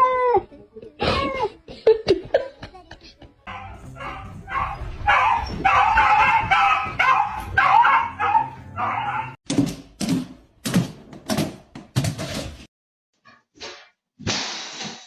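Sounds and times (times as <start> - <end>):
dog barking: 3.5 - 9.4.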